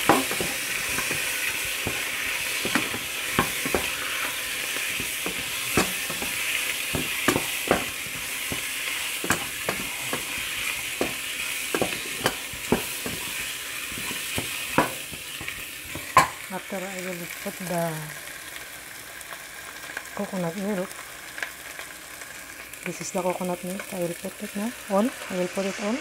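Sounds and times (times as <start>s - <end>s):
spatula scraping and tapping pan: 0.0s - 16.5s
chicken sizzling in oil: 0.0s - 26.0s.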